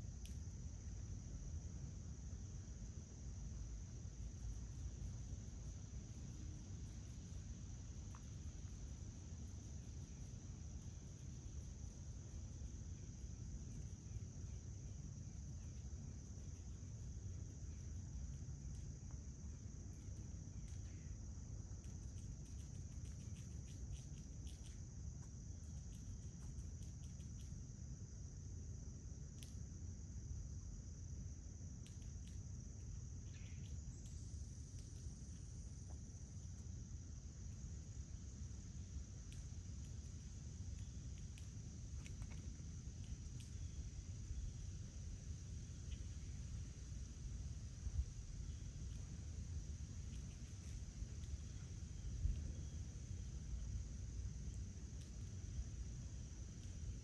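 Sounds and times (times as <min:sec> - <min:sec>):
crickets chirping: 0:00.0 - 0:57.0
low outdoor rumble: 0:00.0 - 0:57.0
small clicks: 0:21.8 - 0:27.6, 0:29.3 - 0:29.6, 0:31.8 - 0:35.5, 0:40.7 - 0:43.6.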